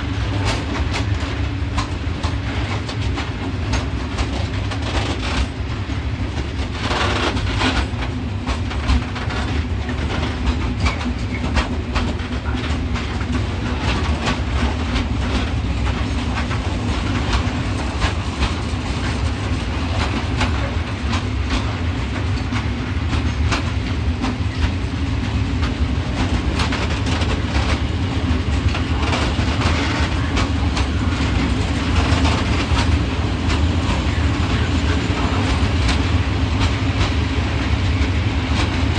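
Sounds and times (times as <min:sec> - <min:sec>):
freight train rumble: 0:00.0 - 0:38.9
wheels clattering over rail joints: 0:06.4 - 0:24.8, 0:25.6 - 0:37.2.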